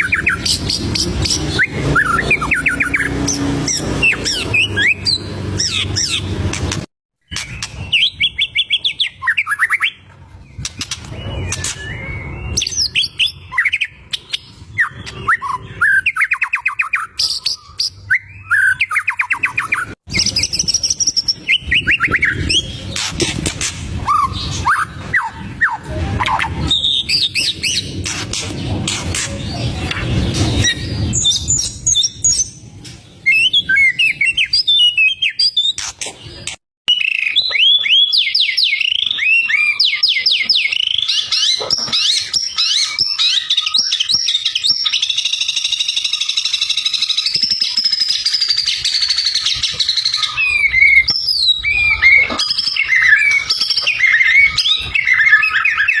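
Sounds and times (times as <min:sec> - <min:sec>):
bird singing whistled phrases: 0:36.9 - 0:41.5.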